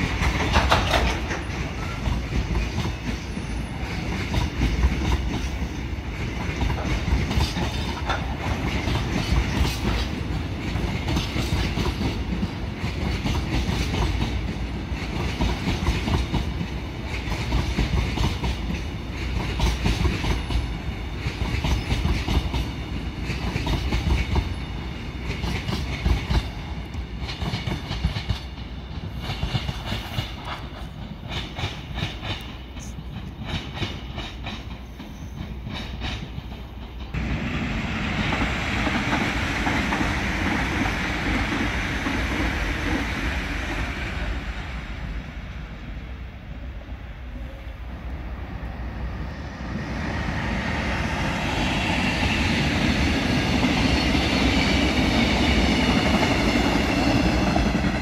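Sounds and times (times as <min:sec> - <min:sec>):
wheels clattering over rail joints: 0:00.0 - 0:05.6
train rumble: 0:00.0 - 0:58.0.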